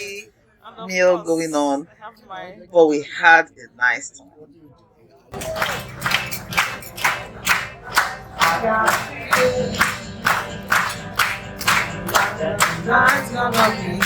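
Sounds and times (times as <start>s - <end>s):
crowd clapping in time: 5.3s - 14.0s
music: 5.4s - 14.0s
people singing: 5.4s - 14.0s.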